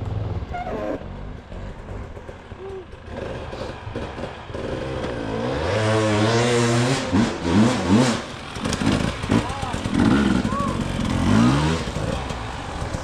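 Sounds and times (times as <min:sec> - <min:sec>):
dirt bike engine revving: 0:03.0 - 0:13.0.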